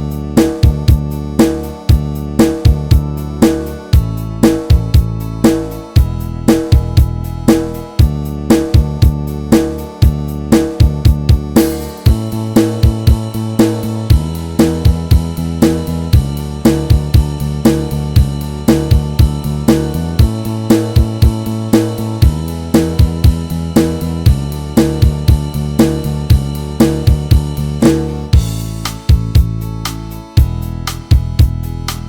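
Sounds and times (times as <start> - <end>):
bass: 0.0 - 32.0
drum kit playing a beat: 0.0 - 32.0
keyboard: 0.0 - 32.0.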